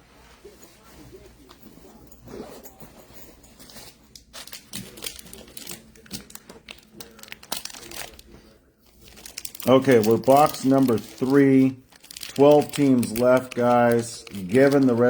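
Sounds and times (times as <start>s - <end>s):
wrappers crinkling and tearing: 3.6s - 15.0s.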